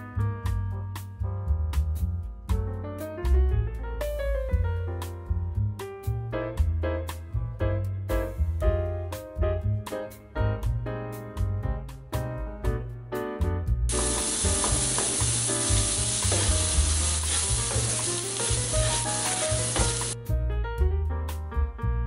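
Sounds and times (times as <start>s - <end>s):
light piano music: 0.0s - 22.0s
food sizzling in frying pan: 13.9s - 20.2s.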